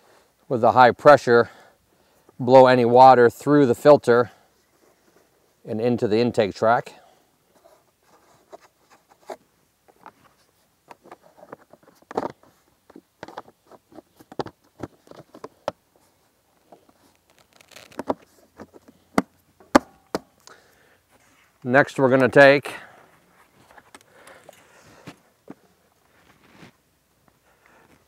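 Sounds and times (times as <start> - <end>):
cloth rustling: 16.0 - 19.0.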